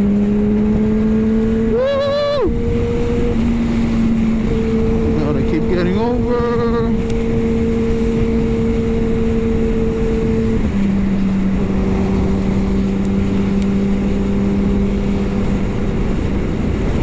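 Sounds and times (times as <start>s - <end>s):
motorcycle engine cruising: 0.0s - 17.0s
wind rush on microphone: 0.0s - 17.0s.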